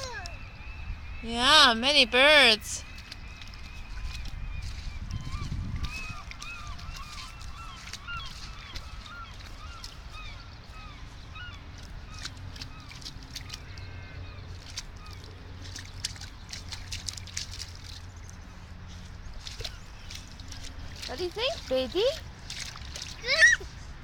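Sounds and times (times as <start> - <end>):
birds honking: 6.1 - 15.3.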